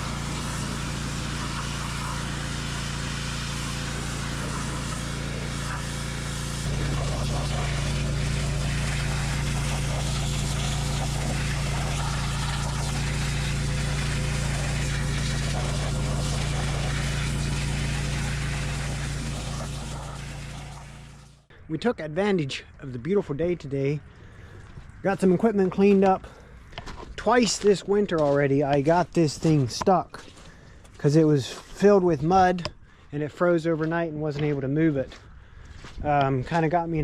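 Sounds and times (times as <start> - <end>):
engine humming steadily: 0.0 - 21.4.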